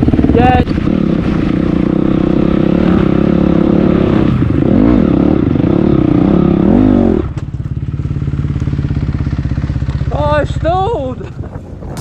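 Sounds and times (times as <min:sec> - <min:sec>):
dirt bike engine revving: 0:00.0 - 0:09.9.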